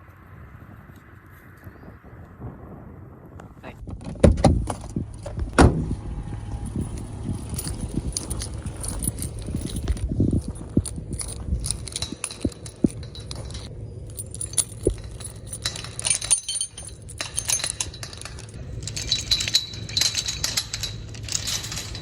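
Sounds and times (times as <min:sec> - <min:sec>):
small metal pieces jingling: 0:06.5 - 0:22.0.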